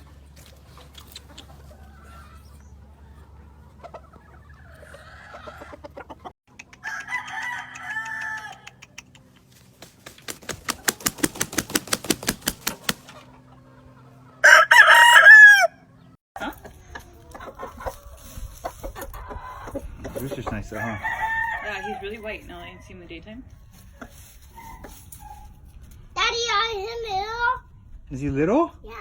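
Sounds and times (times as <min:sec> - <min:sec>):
roosters crowing: 0:01.4 - 0:05.9, 0:06.8 - 0:08.8, 0:12.4 - 0:16.0, 0:19.1 - 0:23.0.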